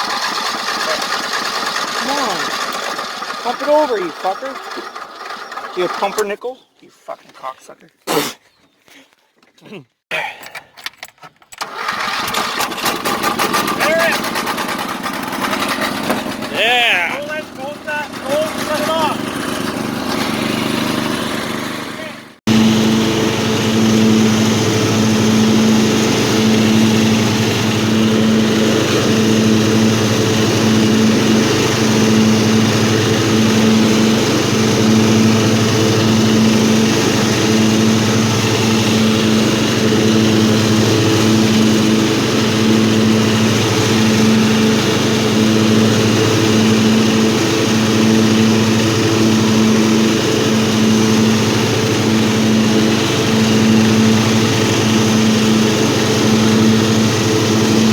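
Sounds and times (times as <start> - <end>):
lawnmower engine running: 0.0 - 6.4, 11.5 - 57.9.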